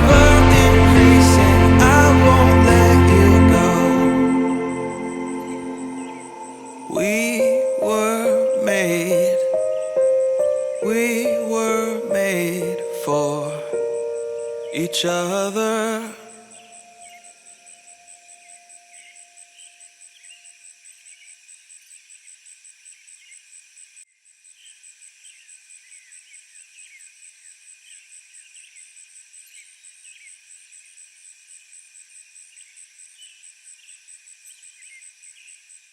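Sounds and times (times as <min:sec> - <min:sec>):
insects pulsing chirr: 0:05.2 - 0:15.3.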